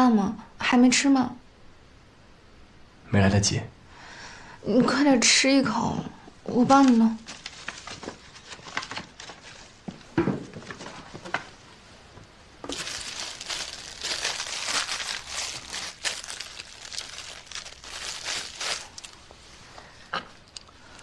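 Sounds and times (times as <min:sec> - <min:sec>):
plastic packaging crinkling: 0:06.7 - 0:09.8, 0:12.6 - 0:19.3
handling sounds: 0:12.6 - 0:19.4.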